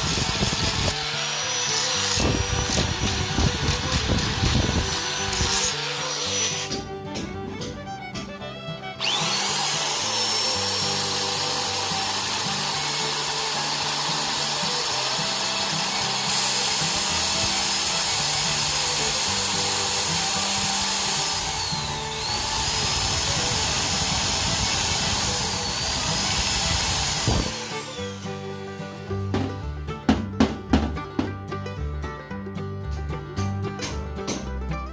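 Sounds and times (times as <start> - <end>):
power tool motor whine: 0.0 - 6.8, 8.9 - 28.6
background music: 0.2 - 34.9.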